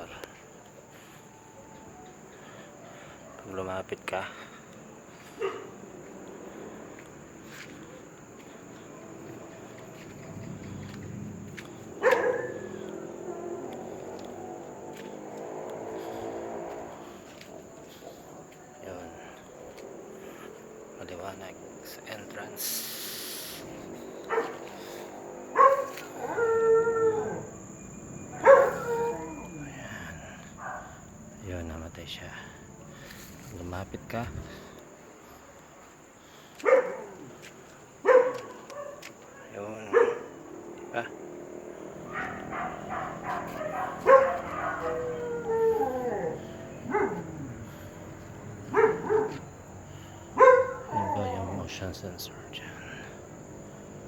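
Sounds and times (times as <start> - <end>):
dog barking: 2.8 - 3.6, 5.2 - 5.9, 11.6 - 16.8, 24.2 - 27.5, 28.3 - 29.6, 30.6 - 31.0, 36.6 - 47.7, 48.5 - 49.6, 50.3 - 51.7
dog howling: 11.9 - 14.6, 24.2 - 24.7, 25.5 - 30.9, 38.0 - 49.6, 50.3 - 51.9.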